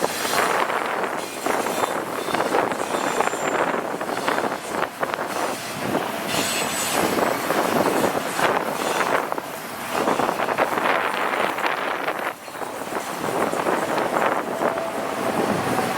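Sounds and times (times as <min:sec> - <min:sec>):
train wheels rumbling over rails: 0:00.0 - 0:15.9
high wheel squeal: 0:00.2 - 0:09.4.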